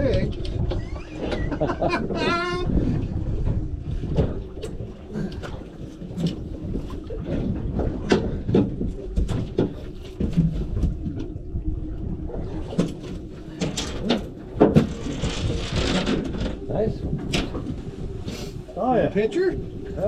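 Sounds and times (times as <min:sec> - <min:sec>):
steady low rumble: 0:00.0 - 0:20.0
knocks and clatter of fishing gear: 0:05.4 - 0:11.4, 0:12.7 - 0:17.8.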